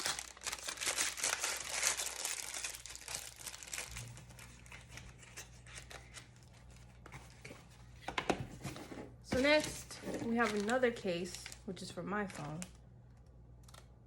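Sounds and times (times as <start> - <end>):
packaging crinkling: 0.0 - 7.5, 9.4 - 12.8.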